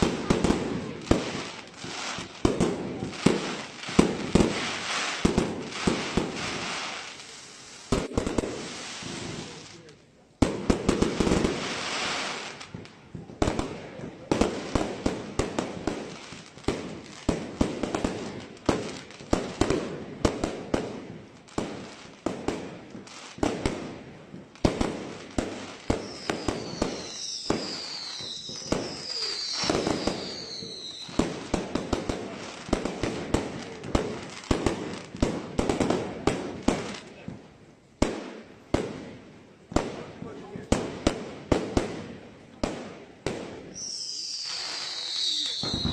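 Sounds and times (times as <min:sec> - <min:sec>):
falling firework whistles: 0:25.4 - 0:34.5, 0:43.5 - 0:45.9.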